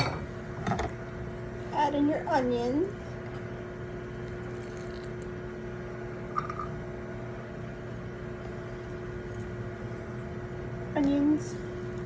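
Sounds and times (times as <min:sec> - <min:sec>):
mechanical motor hum: 0:00.0 - 0:12.0.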